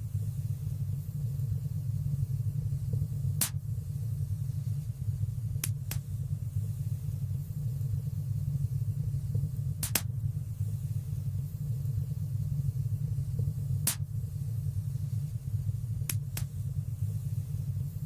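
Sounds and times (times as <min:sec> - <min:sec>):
low rumble of fire: 0:00.0 - 0:18.0
sharp crackling pops: 0:03.4 - 0:03.7, 0:05.6 - 0:06.2, 0:09.7 - 0:10.3, 0:13.8 - 0:14.2, 0:16.0 - 0:16.7.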